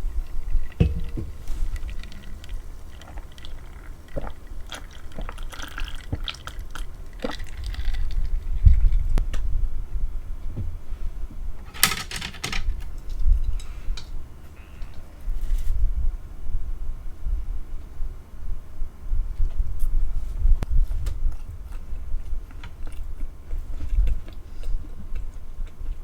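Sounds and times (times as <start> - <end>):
chewing with wet mouth noises: 0.0 - 9.2, 21.2 - 26.0.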